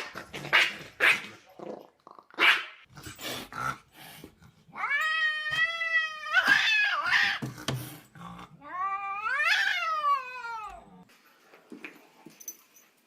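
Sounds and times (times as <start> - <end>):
cat yowling: 4.7 - 7.4, 8.6 - 11.0.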